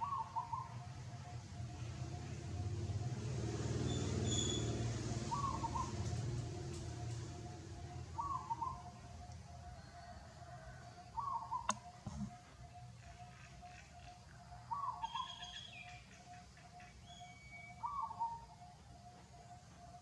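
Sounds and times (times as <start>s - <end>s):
pulsing bird trill: 7.8s - 9.2s, 11.2s - 18.9s
sharp click: 11.7s - 12.3s.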